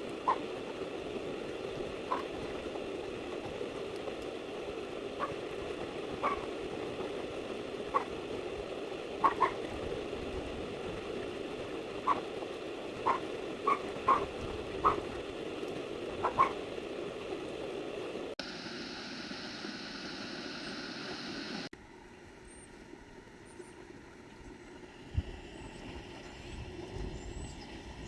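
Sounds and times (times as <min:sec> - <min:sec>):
low background hum: 0:00.0 - 0:28.0
short bird calls: 0:09.2 - 0:09.7, 0:12.0 - 0:12.3, 0:13.0 - 0:15.1, 0:16.2 - 0:16.6.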